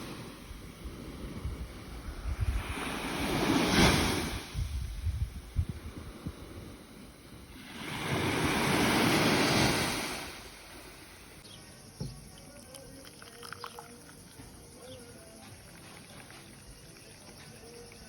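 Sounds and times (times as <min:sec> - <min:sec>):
wave breaking on shore: 0:00.0 - 0:00.4, 0:01.1 - 0:04.8, 0:07.5 - 0:11.4.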